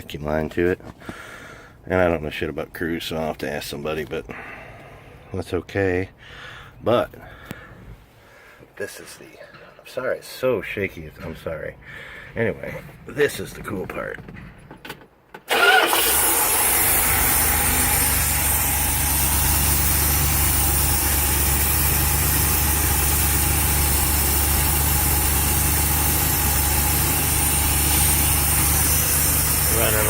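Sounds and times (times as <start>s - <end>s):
engine starting and idling: 15.4s - 30.0s.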